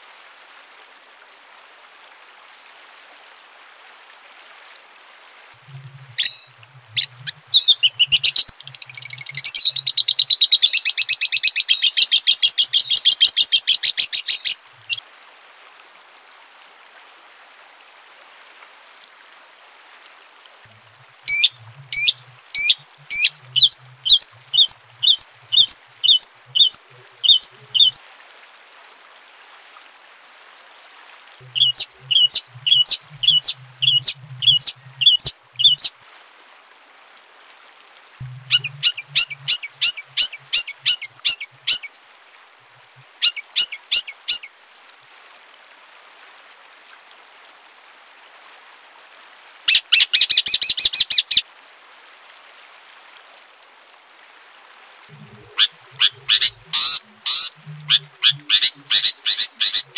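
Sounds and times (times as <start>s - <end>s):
faint steady hiss: 0.0s - 59.9s
songbird singing: 5.6s - 15.0s, 21.3s - 28.0s, 31.4s - 35.9s, 38.2s - 41.9s, 43.2s - 44.8s, 55.1s - 59.9s
buzzy bird trill: 6.0s - 15.0s, 21.3s - 28.0s, 31.6s - 35.9s, 38.4s - 41.9s, 43.2s - 44.8s, 55.2s - 59.9s.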